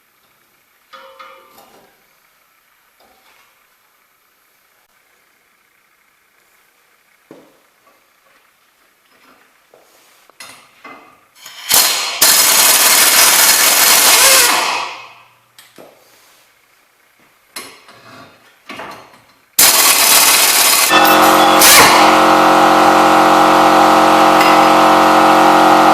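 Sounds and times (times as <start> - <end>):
power tool running: 11.4 - 15.2, 19.6 - 25.9.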